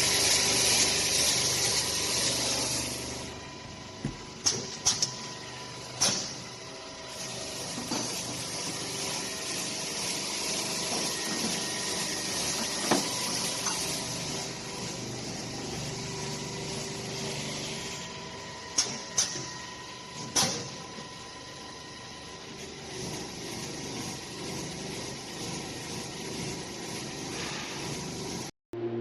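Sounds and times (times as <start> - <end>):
polishing machine hissing: 0.0 - 3.3, 7.2 - 15.4.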